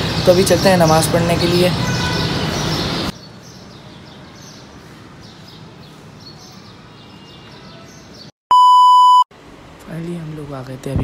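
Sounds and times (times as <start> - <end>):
small birds chirping: 0.0 - 8.3.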